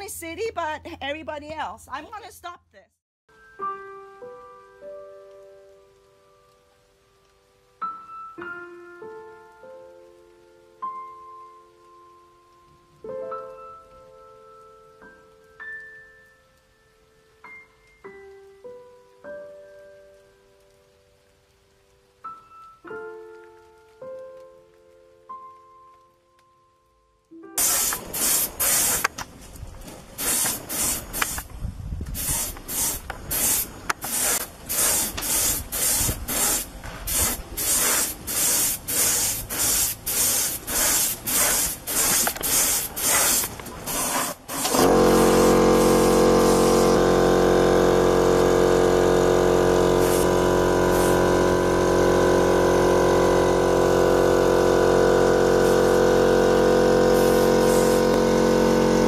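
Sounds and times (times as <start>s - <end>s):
spray gun hissing bursts: 27.6s - 29.2s, 30.1s - 31.5s, 32.2s - 59.0s
loud steady motor hum: 44.7s - 59.0s.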